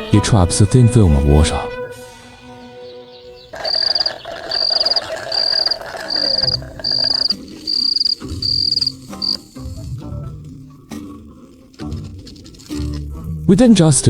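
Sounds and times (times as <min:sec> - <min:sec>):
insect chirping: 0:03.2 - 0:09.7.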